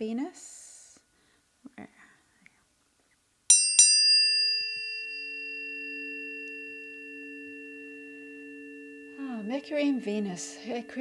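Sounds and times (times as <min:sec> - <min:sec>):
tuning forks ringing pure tones: 0:03.5 - 0:11.0
tuning fork strike click: 0:03.8 - 0:11.0.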